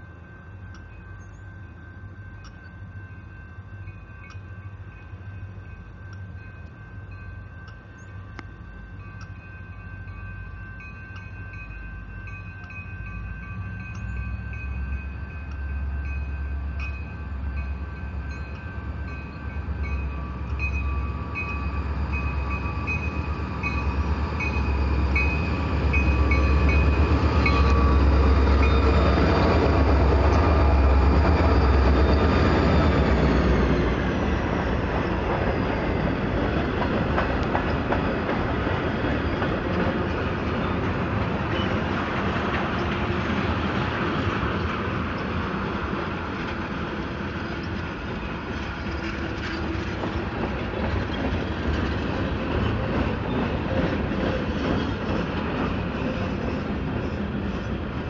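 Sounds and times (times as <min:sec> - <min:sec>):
diesel locomotive engines rumbling: 0:00.0 - 0:58.0
locomotive bell ringing: 0:00.0 - 0:58.0
freight cars rolling: 0:17.7 - 0:58.0.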